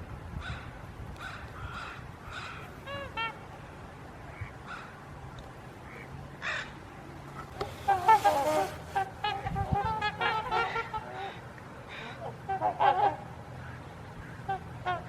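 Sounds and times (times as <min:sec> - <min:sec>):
wild birds calling: 0:04.3 - 0:05.0, 0:05.8 - 0:15.0.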